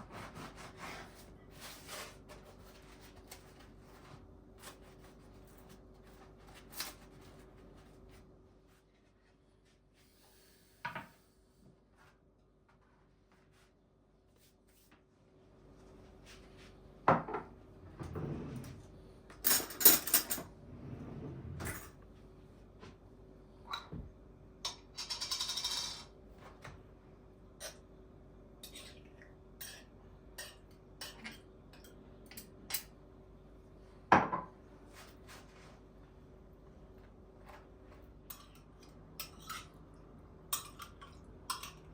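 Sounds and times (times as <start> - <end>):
dishes and cutlery clinking: 29.6 - 32.9, 38.2 - 39.8, 40.5 - 41.9.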